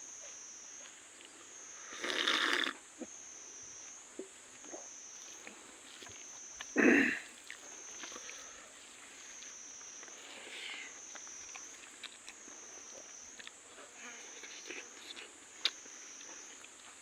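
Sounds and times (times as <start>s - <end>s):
loud short bite or slurp: 2.0s - 2.8s
soft chewing clicks: 5.2s - 8.5s, 9.3s - 17.0s.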